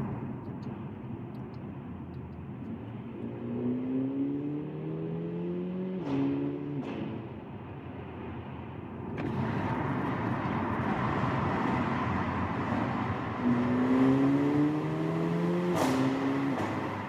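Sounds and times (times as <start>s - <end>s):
car engine accelerating hard: 9.2s - 17.0s.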